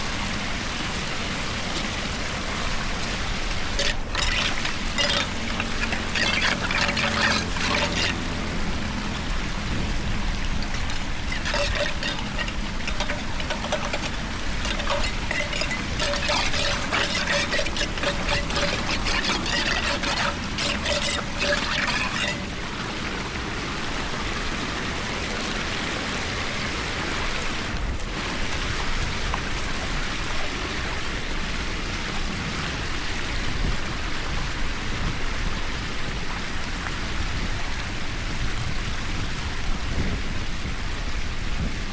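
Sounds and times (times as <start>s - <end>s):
water pouring and trickling: 0.0s - 30.9s.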